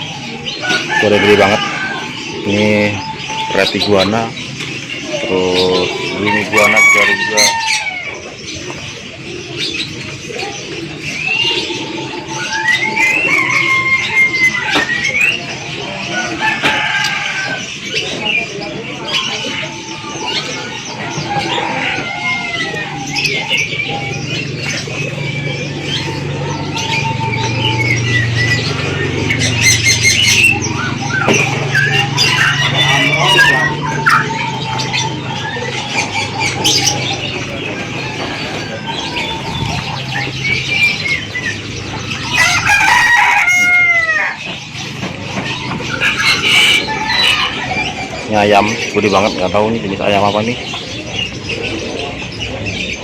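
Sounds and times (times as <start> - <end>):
birds chirping and whistling: 0.0 - 53.0
market noise: 0.0 - 53.0
rooster crowing: 0.5 - 2.4, 5.8 - 8.2, 12.6 - 15.0, 16.0 - 17.7, 21.0 - 23.3, 42.1 - 44.6.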